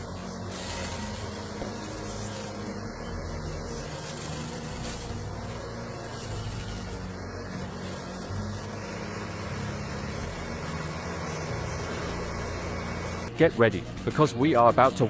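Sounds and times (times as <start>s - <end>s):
heavy machinery engine drone: 0.0s - 13.4s.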